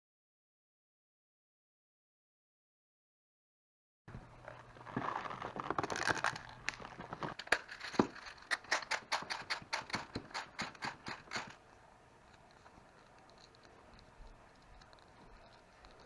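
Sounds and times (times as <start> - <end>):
magazine rattling: 4.5 - 11.7
sharp magazine clicks: 7.4 - 11.6.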